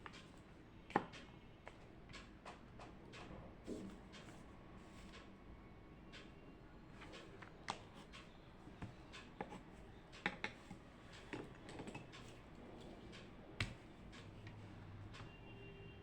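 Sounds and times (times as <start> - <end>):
light desk clicks and taps: 0.9 - 4.4, 7.0 - 15.4.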